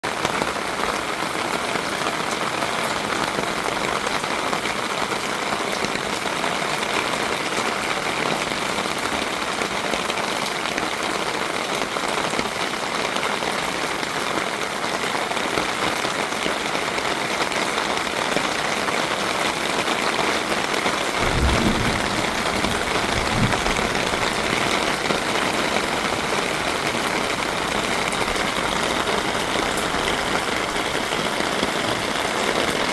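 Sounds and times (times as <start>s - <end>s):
heavy rain pouring: 21.1s - 32.9s
brief low rumble: 21.2s - 24.9s.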